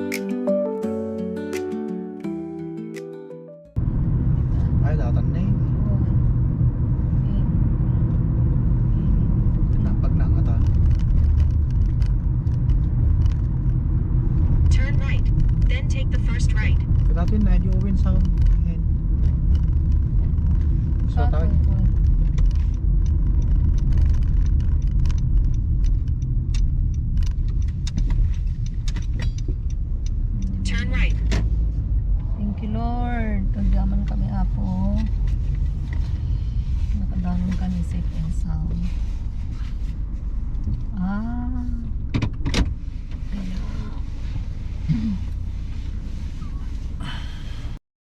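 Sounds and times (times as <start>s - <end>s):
car road noise rumble: 3.8s - 47.8s
light clicks and rattles: 16.8s - 30.6s.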